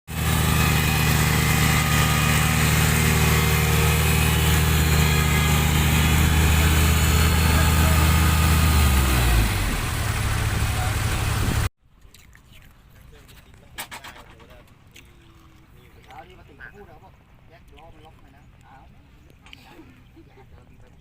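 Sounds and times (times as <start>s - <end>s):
farm vehicle engine running: 0.1s - 11.7s.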